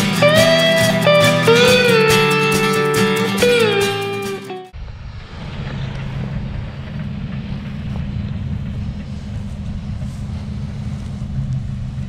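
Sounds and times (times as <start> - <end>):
combine harvester engine rumble: 4.7 - 12.0.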